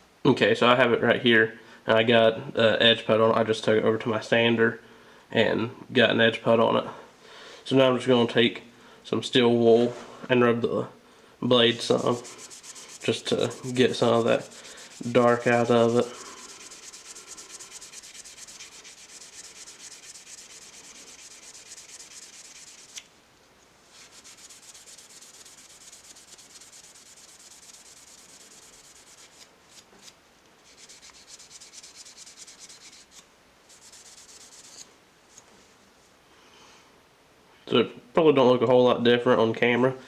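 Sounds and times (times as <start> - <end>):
steel wool scratching on knife blade: 11.6 - 23.1, 23.9 - 29.9, 30.6 - 34.9.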